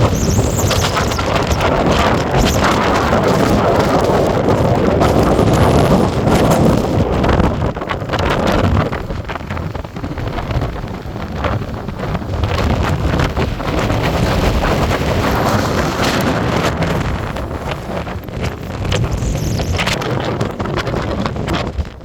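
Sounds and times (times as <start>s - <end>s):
waves breaking on beach: 0.0s - 21.8s
wind buffeting microphone: 0.0s - 22.0s.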